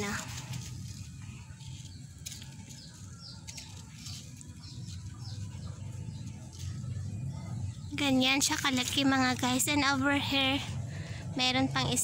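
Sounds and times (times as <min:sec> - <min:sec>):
bird chirping: 0:01.1 - 0:09.6.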